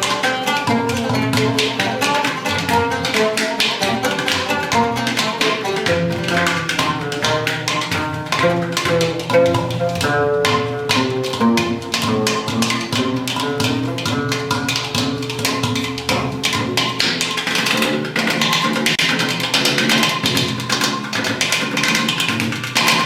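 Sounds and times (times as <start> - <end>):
stepping melodic line: 0.0 - 17.0
fast percussion music: 0.0 - 23.0.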